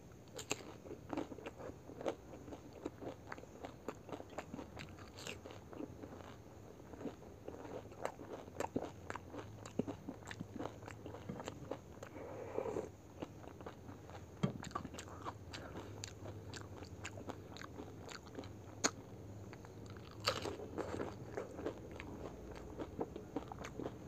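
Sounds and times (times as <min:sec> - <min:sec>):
wet chewing: 0:13.2 - 0:24.0.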